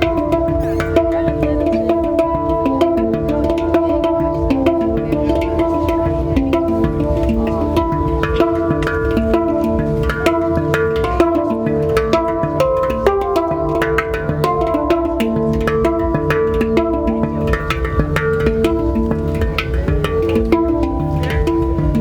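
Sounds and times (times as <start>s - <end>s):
handpan ringing notes: 0.0s - 22.0s.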